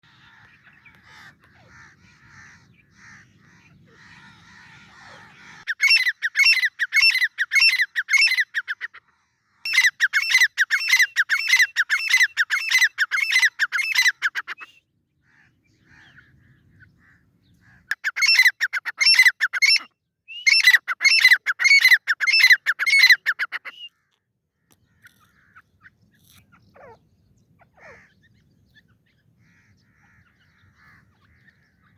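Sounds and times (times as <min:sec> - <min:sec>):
francolin calling: 0:00.0 - 0:08.9, 0:09.7 - 0:24.0.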